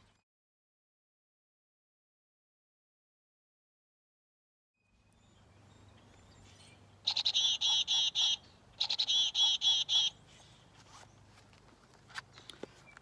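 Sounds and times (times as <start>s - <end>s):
chickadee calling: 5.9s - 10.7s.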